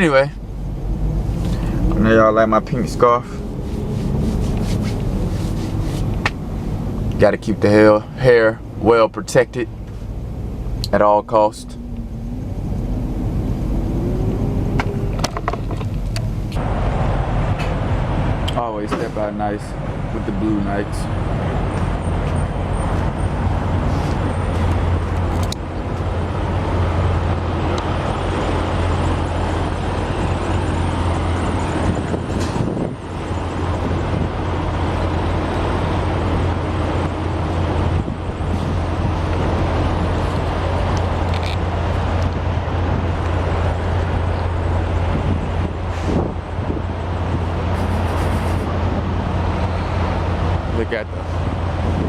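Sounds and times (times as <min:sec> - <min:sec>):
diesel truck engines idling: 0:00.0 - 0:52.0
traffic noise: 0:00.0 - 0:52.0.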